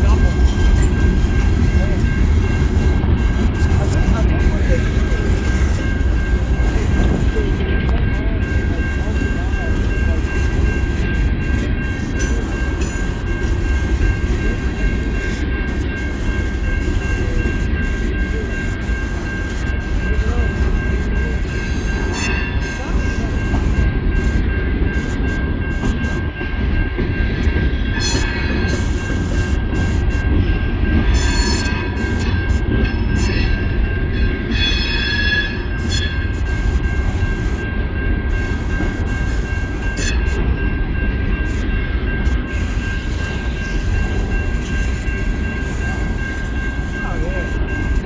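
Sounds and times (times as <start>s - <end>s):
train rumbling past: 0.0s - 48.0s
steel wheel squeal: 19.6s - 23.7s, 27.3s - 37.4s, 38.3s - 40.7s.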